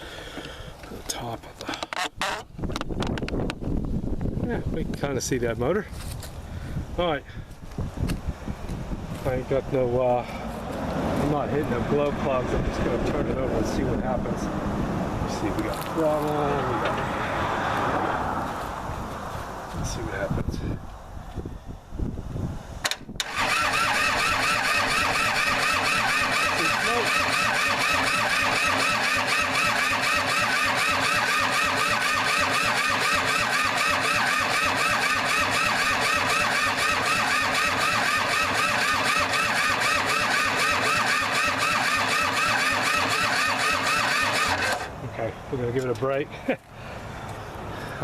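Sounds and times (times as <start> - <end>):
tractor engine cranking: 0.3 - 3.2, 15.3 - 17.2, 22.8 - 45.0.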